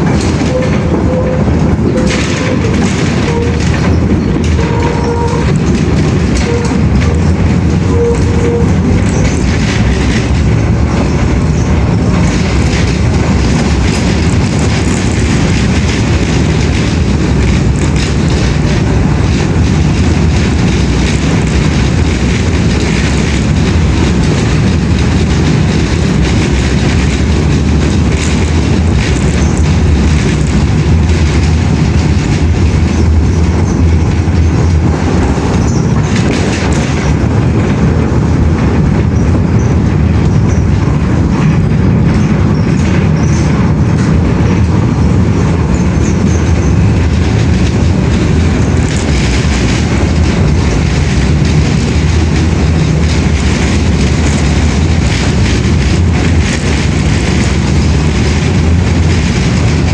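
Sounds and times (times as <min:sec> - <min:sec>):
train rumbling: 0:00.0 - 0:59.9.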